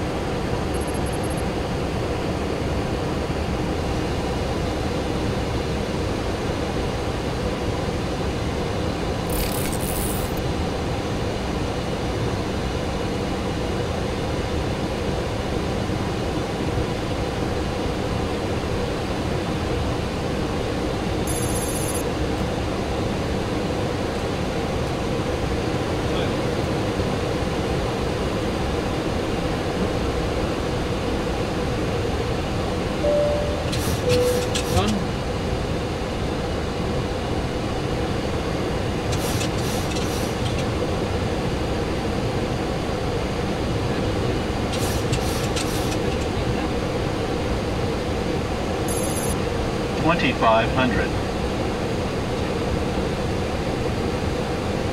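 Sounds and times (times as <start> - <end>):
high-pitched blips: 33.0 - 34.9.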